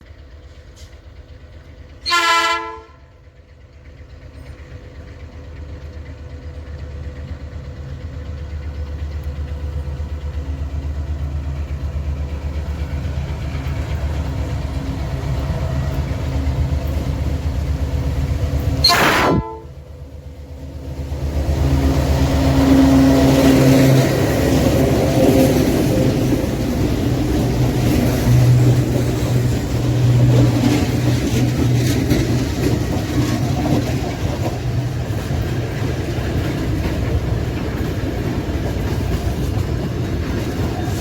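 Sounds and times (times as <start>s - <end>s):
locomotive engine rumble: 0.0s - 41.0s
train horn blasts: 2.0s - 3.1s, 18.8s - 19.9s.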